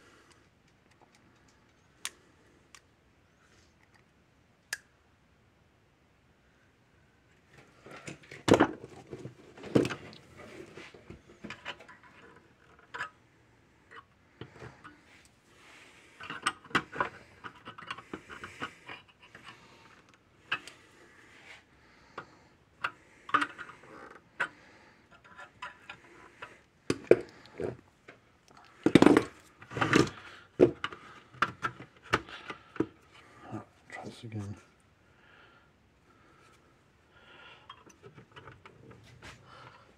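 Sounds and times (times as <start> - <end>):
parts clicking and rattling: 16.0 - 20.9, 22.1 - 33.0.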